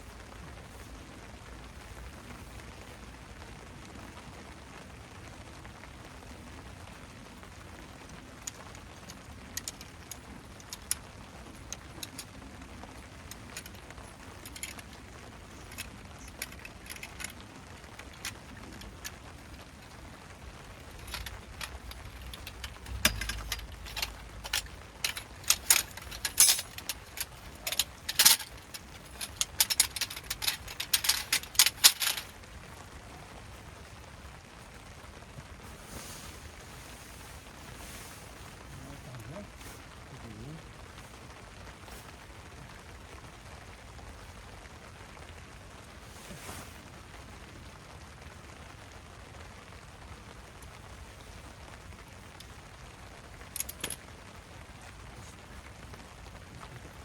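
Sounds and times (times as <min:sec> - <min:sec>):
faint rain hiss: 0:00.0 - 0:57.0
metallic clinks and clicks: 0:09.6 - 0:11.0, 0:14.4 - 0:14.9, 0:15.5 - 0:17.4, 0:20.8 - 0:32.3, 0:53.6 - 0:54.0
gear jangling rattle: 0:14.4 - 0:14.9, 0:15.5 - 0:17.4, 0:20.8 - 0:32.3, 0:53.5 - 0:54.0.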